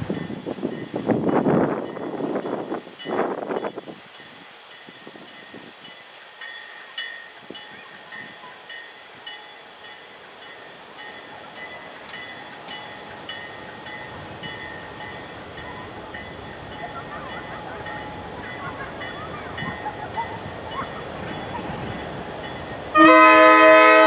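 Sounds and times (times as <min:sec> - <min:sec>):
crossing warning bell ringing: 0:00.0 - 0:24.0.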